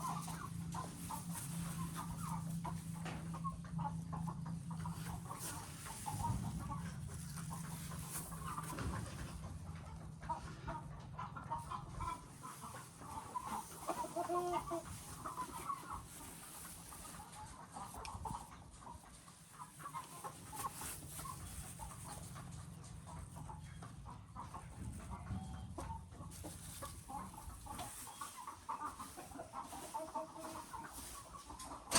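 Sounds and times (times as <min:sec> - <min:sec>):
chickens clucking: 0:00.0 - 0:31.9
chicken drawn-out call: 0:13.2 - 0:15.9.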